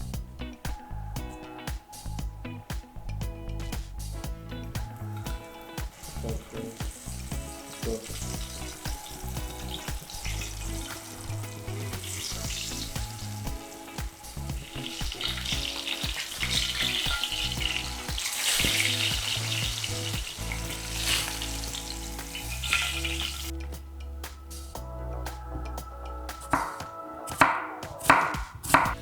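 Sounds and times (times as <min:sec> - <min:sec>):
chicken sizzling in a pan: 0:04.9 - 0:23.5.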